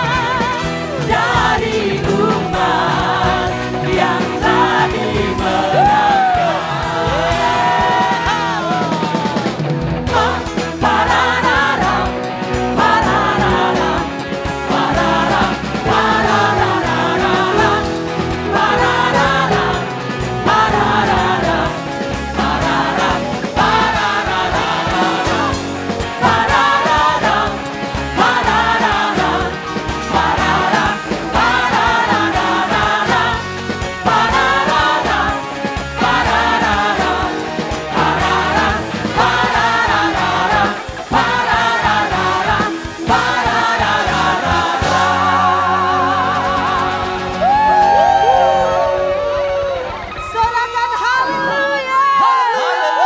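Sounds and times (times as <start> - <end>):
band with drums keys and bass: 0.0 - 53.0
singers: 0.0 - 53.0.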